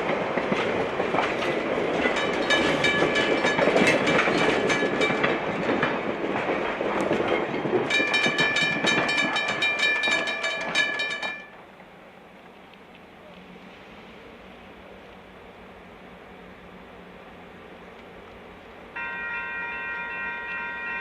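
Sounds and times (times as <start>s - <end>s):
train wheels clicking over rail joints: 0.0s - 11.9s.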